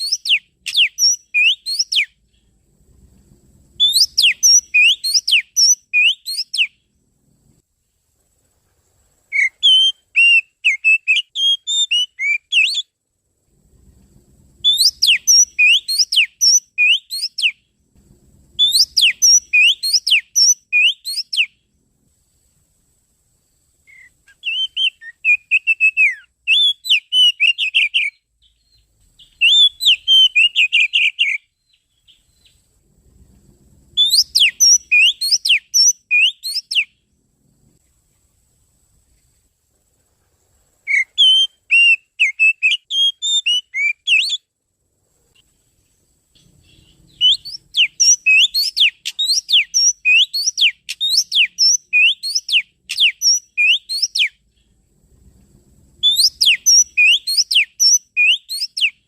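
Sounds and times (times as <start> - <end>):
bird song whistles: 0.0 - 2.5, 3.7 - 6.9, 9.3 - 13.0, 14.6 - 17.7, 18.6 - 21.6, 23.8 - 32.7, 34.0 - 37.1, 40.8 - 44.5, 46.4 - 54.7, 56.0 - 59.0.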